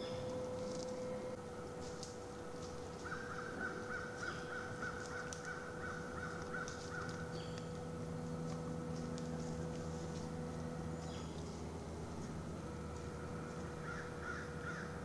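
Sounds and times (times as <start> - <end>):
bird calling repeated notes: 2.9 - 8.4, 13.3 - 15.0.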